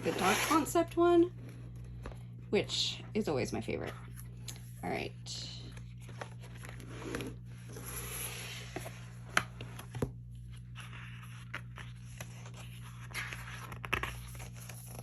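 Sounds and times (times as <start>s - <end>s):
paper and cardboard rustling: 0.0s - 2.1s, 5.7s - 15.0s
steady electrical hum: 0.0s - 15.0s.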